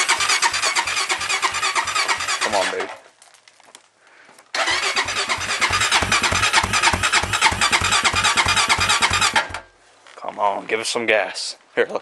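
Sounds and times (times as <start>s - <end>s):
electric starter cranking engine: 0.0s - 2.8s, 4.6s - 9.6s.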